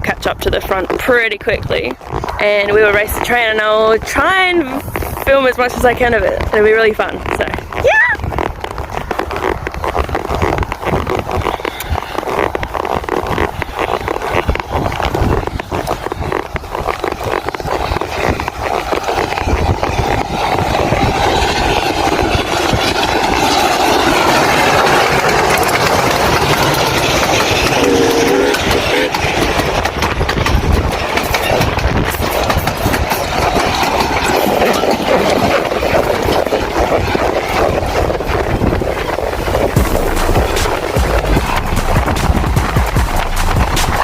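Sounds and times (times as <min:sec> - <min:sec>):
steam train rumbling on rails: 0:15.2 - 0:44.0.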